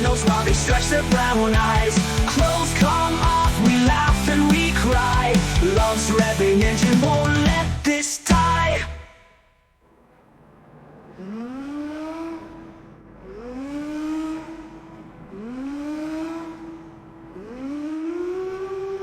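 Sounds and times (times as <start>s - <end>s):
vehicle engine revving: 9.8s - 19.0s.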